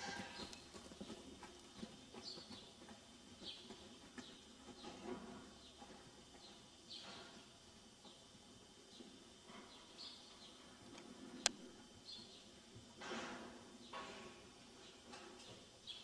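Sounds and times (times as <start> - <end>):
horse footfalls on dirt: 0.0 - 8.2
small birds chirping: 9.7 - 10.8, 11.4 - 12.6.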